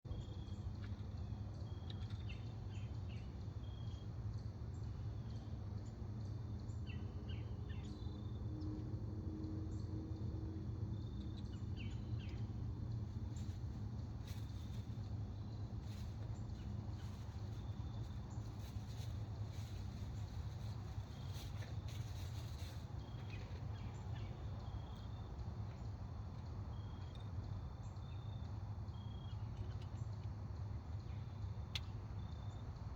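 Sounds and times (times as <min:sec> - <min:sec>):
steady low rumble: 0:04.5 - 0:28.2.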